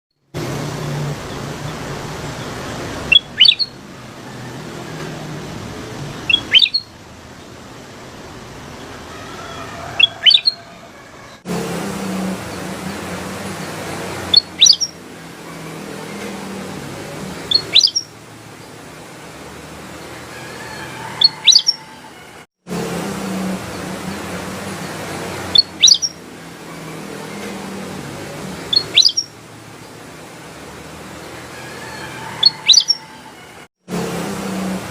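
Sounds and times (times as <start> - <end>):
bulbul chirping: 3.1 - 3.8, 6.3 - 6.9, 10.0 - 10.6, 14.3 - 15.0, 17.5 - 18.1, 21.2 - 21.8, 25.5 - 26.2, 28.7 - 29.3, 32.4 - 33.0.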